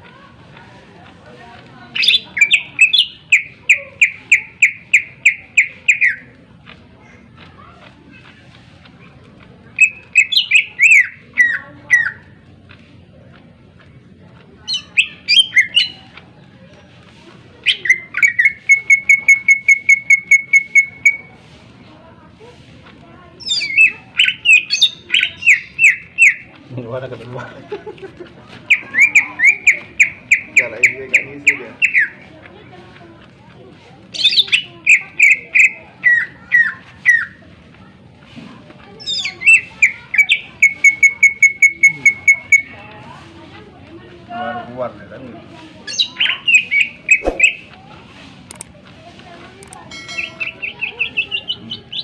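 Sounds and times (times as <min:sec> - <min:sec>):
bird singing whistled notes: 0:02.0 - 0:06.3, 0:09.8 - 0:12.2, 0:14.7 - 0:16.0, 0:23.4 - 0:26.4, 0:45.9 - 0:47.7.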